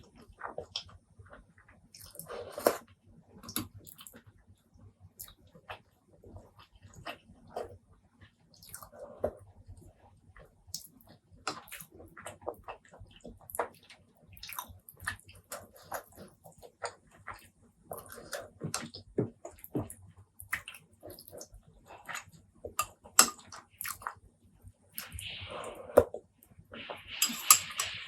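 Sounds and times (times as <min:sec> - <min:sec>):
wet chewing: 0:10.4 - 0:24.2.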